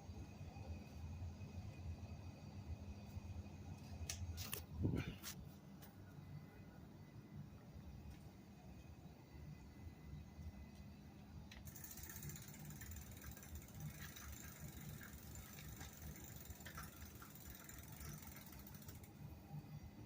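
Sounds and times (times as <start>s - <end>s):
bicycle freewheel ticking: 11.5s - 19.6s.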